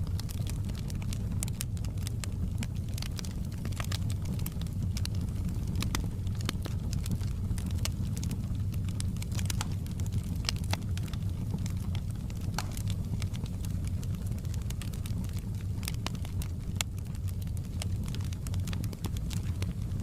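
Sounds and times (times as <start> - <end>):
wood fire crackling and popping: 0.0 - 20.0.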